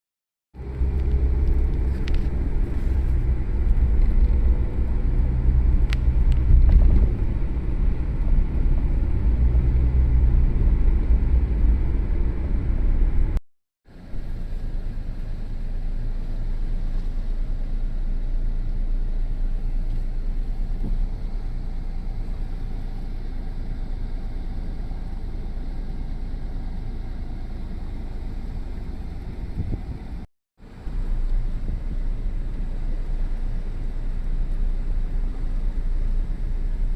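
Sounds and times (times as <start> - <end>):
strong wind buffeting microphone: 29.3 - 30.2.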